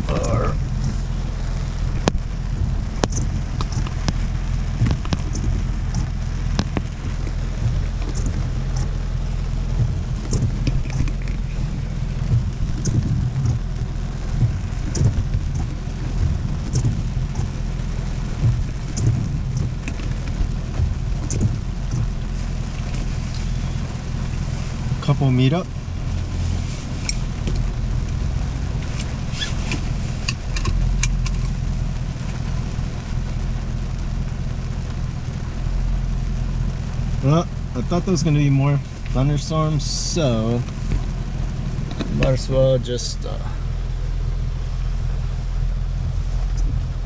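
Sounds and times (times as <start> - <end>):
rain pattering on car roof: 0.0 - 47.0
steady low hum: 0.0 - 47.0.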